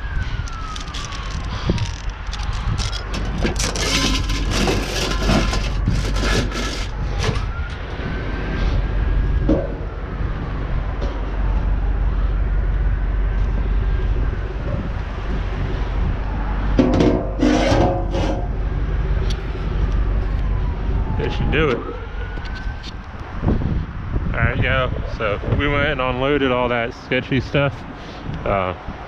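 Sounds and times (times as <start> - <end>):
siren wailing: 0.0 - 25.6
low rumble: 0.0 - 26.0
knocks and rattles: 0.5 - 7.5.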